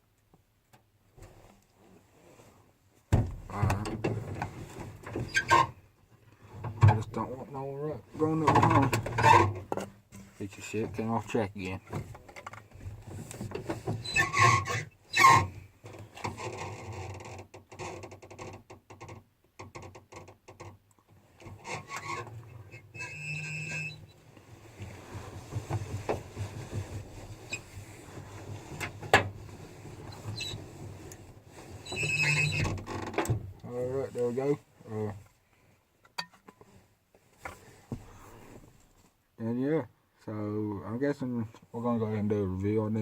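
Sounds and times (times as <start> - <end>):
handling scraping and rubbing: 21.3 - 32.7, 33.7 - 35.3
short squeak: 21.8 - 24.2, 31.8 - 32.7.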